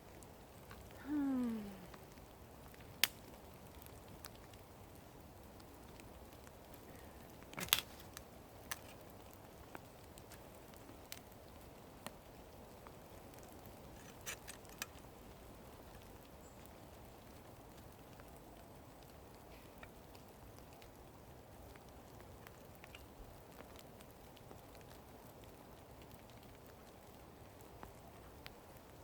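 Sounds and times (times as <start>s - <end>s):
rain pattering in forest: 0.0s - 29.0s
sharp clicks and snaps: 2.7s - 3.3s.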